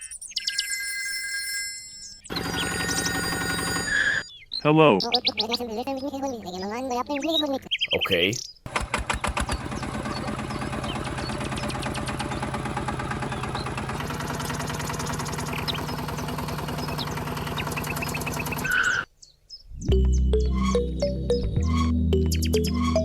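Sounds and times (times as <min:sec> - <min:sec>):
small motor with fast ticking rattle: 0:02.3 - 0:04.2, 0:08.7 - 0:19.0.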